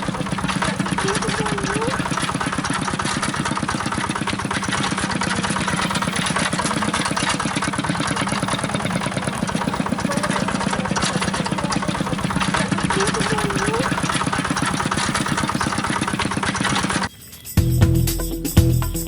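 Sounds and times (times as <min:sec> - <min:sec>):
small engine idling: 0:00.0 - 0:19.0.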